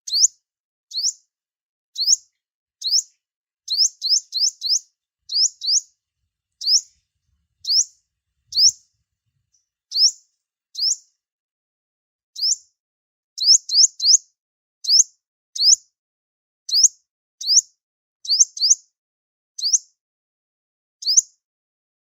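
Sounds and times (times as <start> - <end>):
bird chip calls: 0.1 - 0.3, 2.0 - 2.2, 2.8 - 3.1, 3.7 - 5.9, 6.6 - 7.0, 7.6 - 8.9, 9.9 - 10.2.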